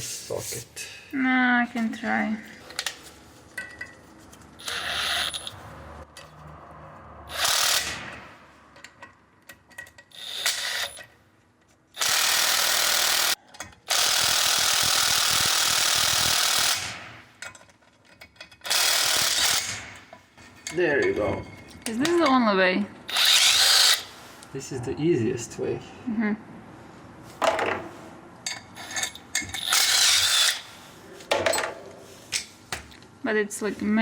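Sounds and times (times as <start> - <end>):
power tool driving bolts: 4.6 - 5.6, 7.3 - 8.3, 10.0 - 11.1, 12.0 - 17.6, 18.2 - 20.1, 23.1 - 24.1, 28.8 - 30.7.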